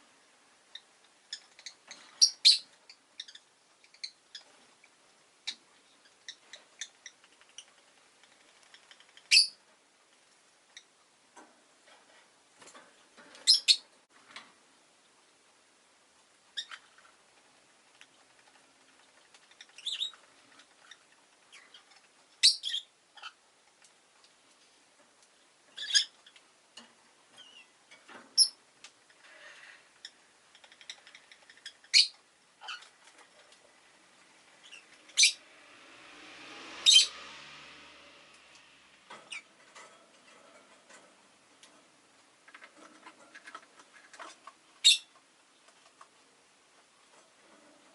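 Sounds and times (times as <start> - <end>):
lovebird sharp chirps: 9.3 - 9.6, 34.6 - 35.4.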